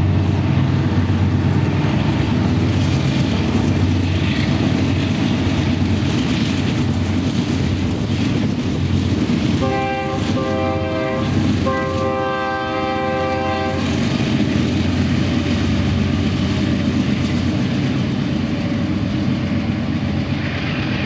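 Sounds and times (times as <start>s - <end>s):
locomotive engine rumbling: 0.0s - 21.0s
locomotive air horn blasts: 9.6s - 13.8s.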